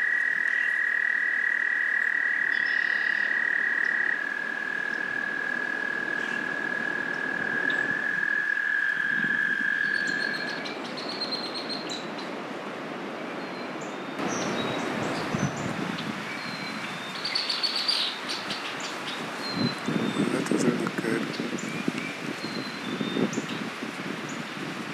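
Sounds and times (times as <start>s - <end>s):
small birds chirping: 13.5s - 24.5s.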